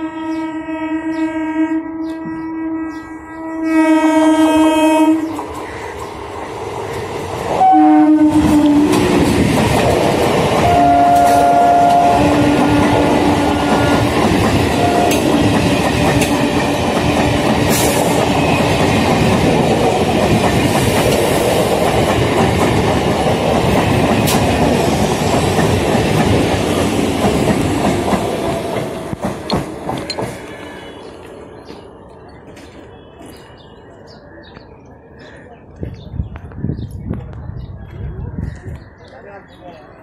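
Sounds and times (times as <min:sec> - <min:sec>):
train horn blasts: 0:00.0 - 0:05.3, 0:07.5 - 0:09.2, 0:10.6 - 0:15.3
train passing at speed: 0:00.0 - 0:38.4.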